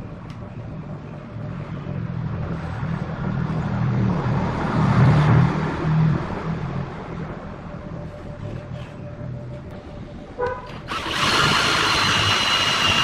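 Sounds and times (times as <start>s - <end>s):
machine motor humming: 10.7s - 13.0s.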